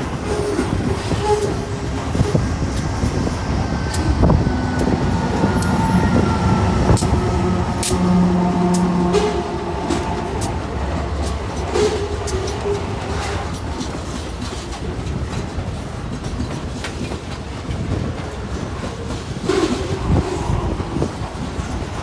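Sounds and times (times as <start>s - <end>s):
freight train rumbling past: 0.0s - 22.0s
wheels clacking on rails: 0.0s - 22.0s.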